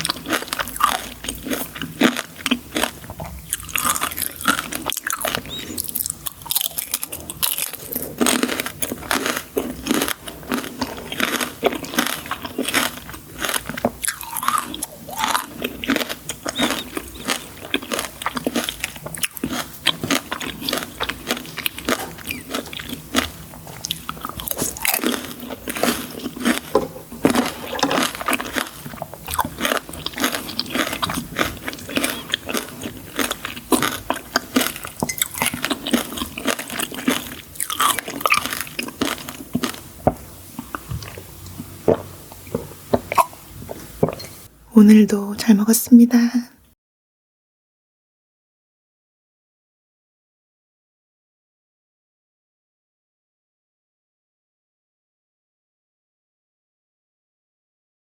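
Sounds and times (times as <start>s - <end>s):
crunchy sweets being chewed: 0.0s - 44.5s.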